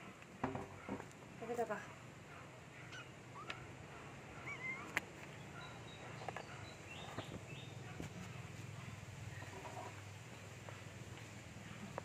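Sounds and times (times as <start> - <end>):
bird chirps: 4.4 - 7.9.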